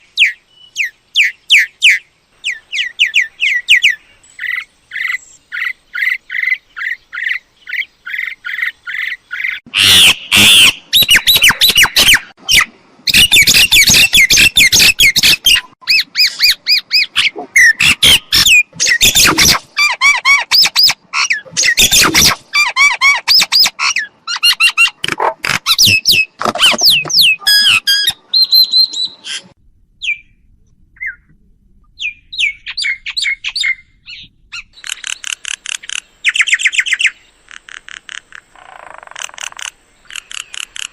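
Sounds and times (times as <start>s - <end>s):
myna squawking and chattering: 13.4s - 28.2s.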